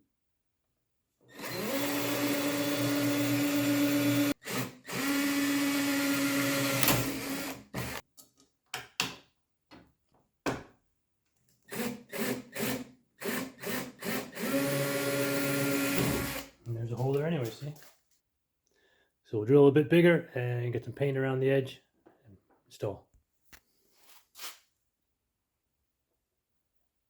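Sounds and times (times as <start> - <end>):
electric drill whining: 1.3 - 8.0, 11.7 - 16.5.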